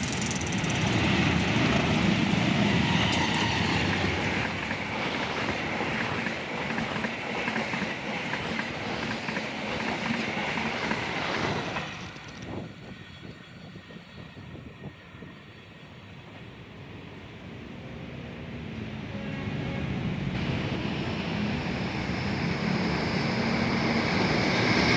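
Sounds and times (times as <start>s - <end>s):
train wheels clattering over rails: 0.0s - 14.1s
steady train rumble: 0.0s - 24.9s.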